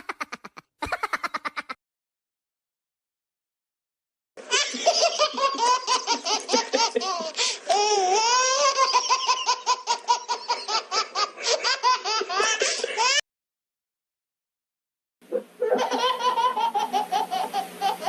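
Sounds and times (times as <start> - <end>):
baby laughing: 0.0 - 1.8, 4.4 - 13.2, 15.3 - 18.0.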